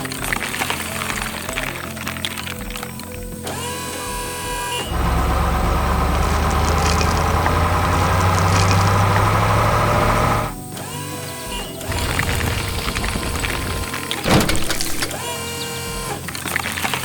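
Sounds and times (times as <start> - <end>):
deep truck engine rumble: 4.8 - 10.6, 11.9 - 15.2.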